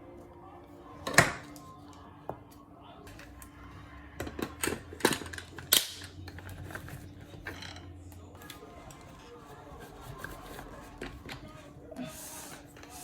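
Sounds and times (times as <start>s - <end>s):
clicks and knocks of hard objects: 4.2s - 7.9s.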